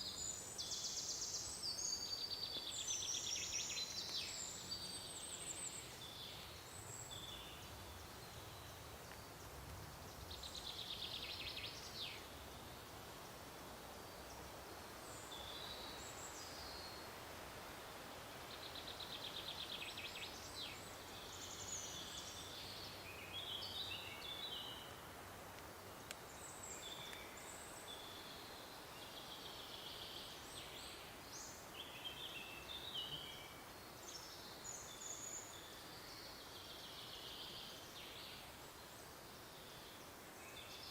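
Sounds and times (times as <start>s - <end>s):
small birds chirping: 0.0s - 17.2s, 18.4s - 40.9s
soft background hiss: 0.0s - 40.9s.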